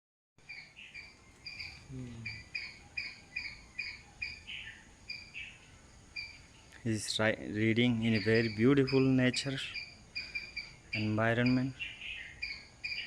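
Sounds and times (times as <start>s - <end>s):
bird chirping high notes: 8.0s - 13.0s.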